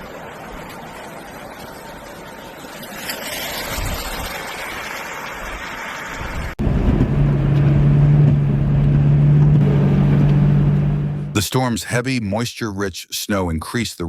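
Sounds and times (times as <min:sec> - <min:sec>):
rushing road and wind noise: 0:00.0 - 0:11.4
vehicle engine humming: 0:04.4 - 0:11.5.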